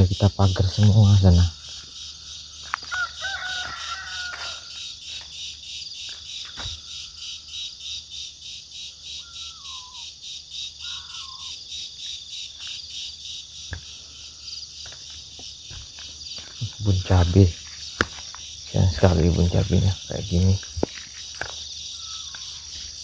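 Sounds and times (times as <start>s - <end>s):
insects trilling in pulses: 0.0s - 23.0s
fowl crowing: 2.8s - 4.8s, 10.8s - 11.6s
short bird calls: 8.9s - 12.0s, 21.8s - 23.0s.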